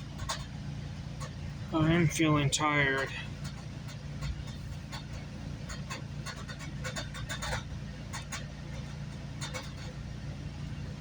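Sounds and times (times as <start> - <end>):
train running rumble: 0.0 - 11.0
clicks and rattles: 3.0 - 10.0.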